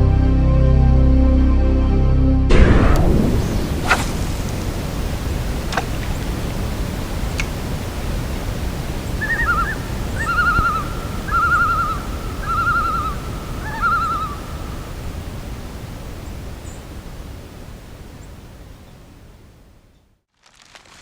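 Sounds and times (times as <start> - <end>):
steady low rumble: 2.3 - 18.6
loon tremolo call: 6.2 - 15.3.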